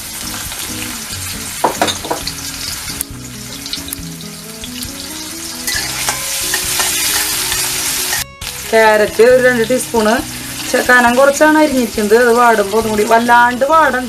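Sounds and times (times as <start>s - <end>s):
beans sizzling in oil: 0.0s - 14.0s
spatula stirring in wok: 5.7s - 8.2s.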